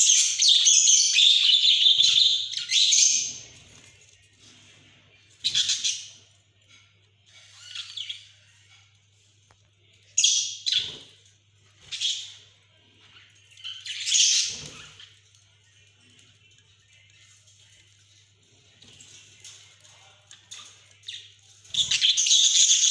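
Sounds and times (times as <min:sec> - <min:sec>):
budgerigars chirping and squawking: 0:00.0 - 0:06.3, 0:07.2 - 0:09.0, 0:10.2 - 0:15.2, 0:18.1 - 0:22.9.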